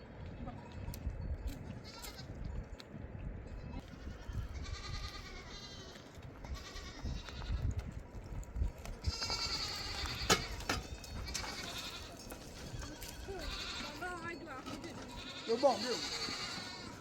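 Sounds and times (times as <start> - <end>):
goats bleating: 1.8 - 2.3, 3.6 - 7.7, 9.0 - 17.0.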